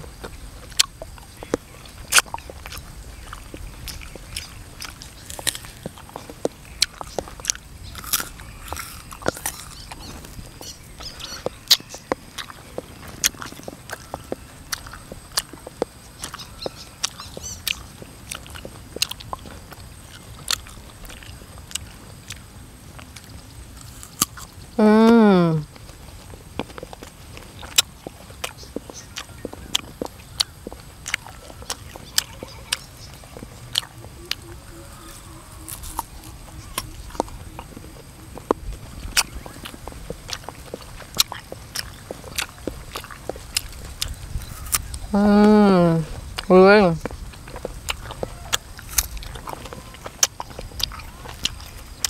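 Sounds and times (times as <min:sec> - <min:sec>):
crunchy chewing: 0:00.0 - 0:52.0
wet mouth clicks: 0:38.4 - 0:45.1.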